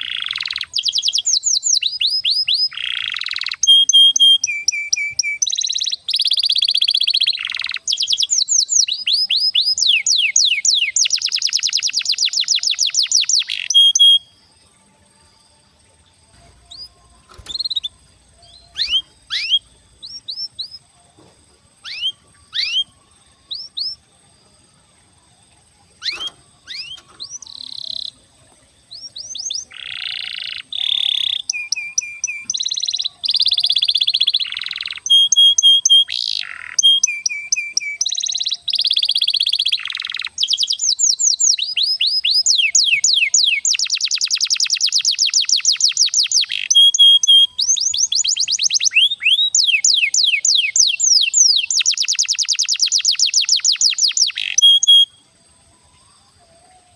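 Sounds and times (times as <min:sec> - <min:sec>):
canary singing: 0:00.0 - 0:56.9.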